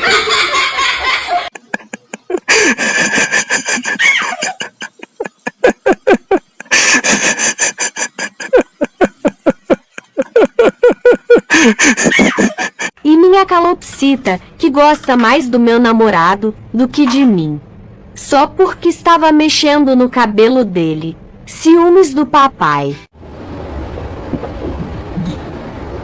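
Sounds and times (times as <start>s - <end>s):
person laughing hard: 0.0s - 13.0s.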